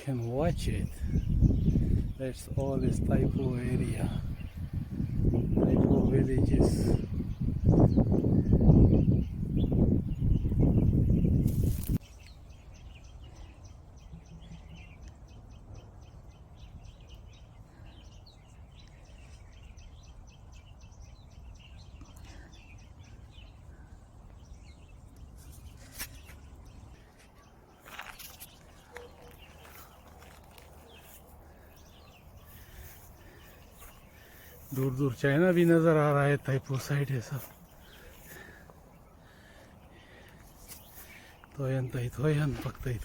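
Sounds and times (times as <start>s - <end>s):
wind rumbling on microphone: 0.4s - 13.1s
faint bird chirps: 6.9s - 35.7s.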